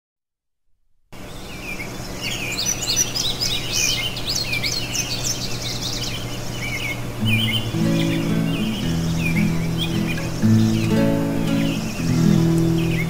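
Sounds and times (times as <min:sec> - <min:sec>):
songbirds chirping and singing: 0:01.2 - 0:13.0
steady low hum: 0:01.2 - 0:13.0.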